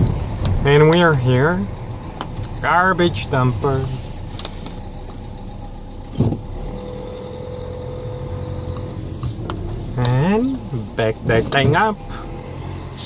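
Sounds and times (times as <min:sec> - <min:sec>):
diesel engine running: 0:00.0 - 0:13.0
short thump: 0:06.1 - 0:06.5.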